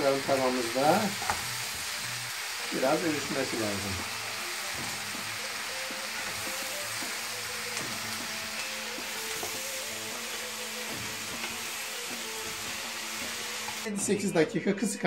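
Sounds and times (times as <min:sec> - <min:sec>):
vegetables sizzling in a pan: 0:00.0 - 0:14.1.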